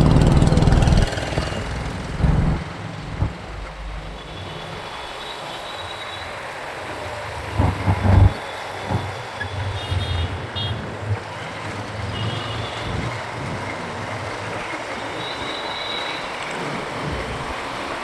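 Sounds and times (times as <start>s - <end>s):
low wind buffeting: 0.0s - 5.3s, 6.8s - 14.8s
wind and road noise: 0.0s - 18.0s.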